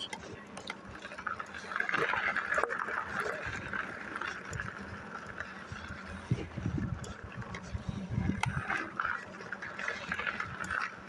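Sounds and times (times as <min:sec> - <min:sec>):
small ticks: 0:04.2 - 0:11.0
wind noise on microphone: 0:04.5 - 0:09.0.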